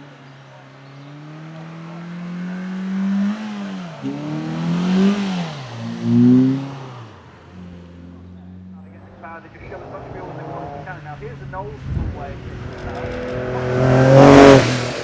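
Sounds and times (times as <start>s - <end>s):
race car engine accelerating: 0.9s - 15.0s.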